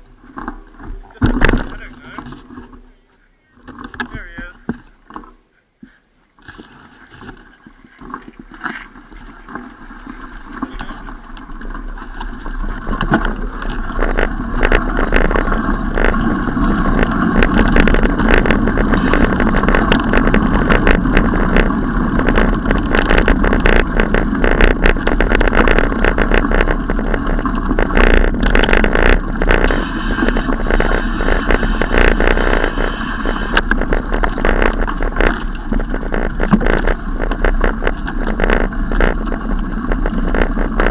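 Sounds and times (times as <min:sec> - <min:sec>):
bicycle rolling rumble: 0:00.0 - 0:40.9
wind on microphone: 0:06.5 - 0:40.9
bicycle clicks and rattles: 0:10.7 - 0:40.9.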